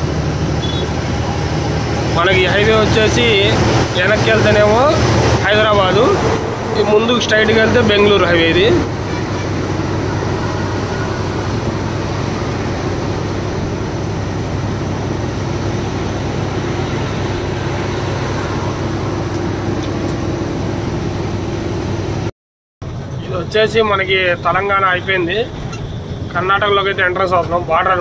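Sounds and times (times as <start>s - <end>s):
road hiss: 0.0s - 22.2s
truck diesel engine drone: 0.0s - 28.0s.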